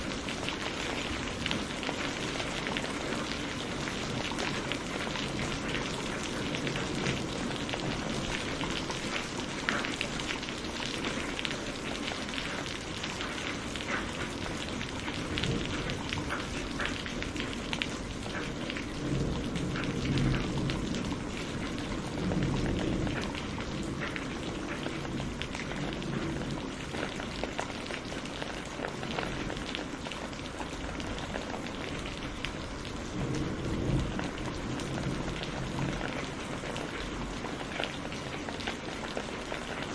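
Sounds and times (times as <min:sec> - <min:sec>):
rain drops spattering: 0:00.0 - 0:39.9
distant thunder rumbling: 0:14.5 - 0:38.4.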